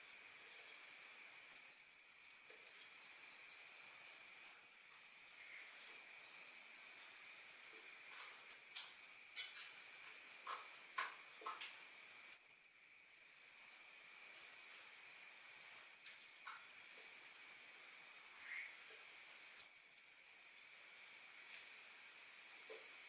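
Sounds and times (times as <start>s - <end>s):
faint steady high hum: 0.0s - 23.0s.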